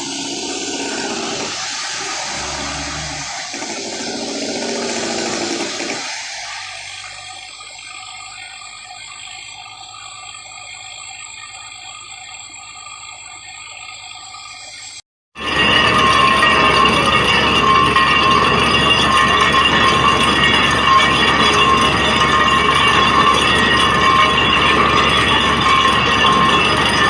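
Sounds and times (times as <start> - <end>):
loud water-like rushing: 0.0 - 9.0
steady tones: 0.0 - 9.7.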